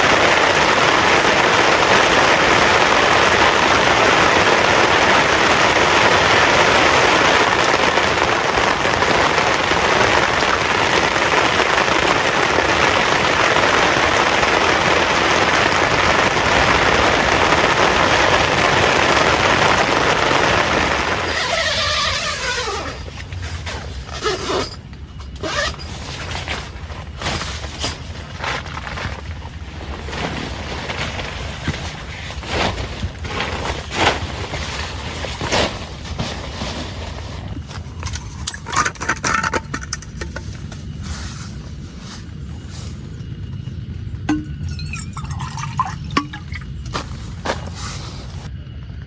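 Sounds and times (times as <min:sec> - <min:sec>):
heavy rain pouring: 0:00.0 - 0:39.1.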